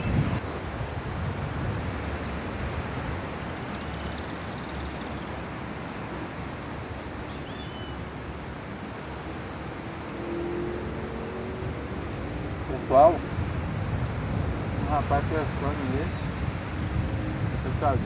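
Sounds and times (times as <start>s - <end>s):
wind on microphone: 0.0s - 3.8s, 10.8s - 18.0s
insect trill: 0.0s - 18.0s
faint bird chirps: 3.8s - 5.3s, 7.0s - 8.0s.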